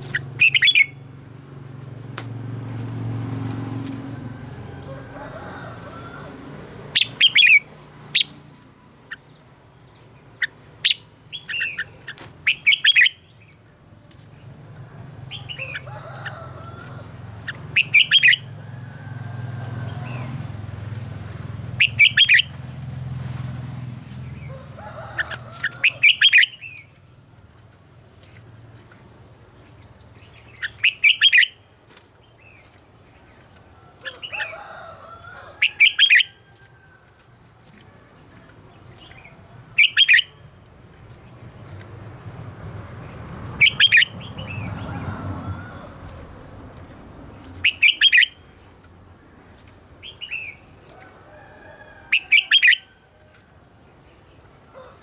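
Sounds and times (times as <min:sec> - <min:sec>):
bird singing warbled notes: 0:00.0 - 0:01.2, 0:17.7 - 0:18.4.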